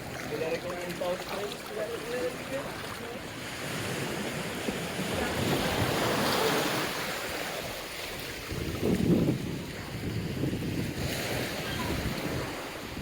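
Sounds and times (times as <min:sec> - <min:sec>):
waves washing onto beach: 0:00.0 - 0:13.0
wind noise on microphone: 0:03.5 - 0:13.0.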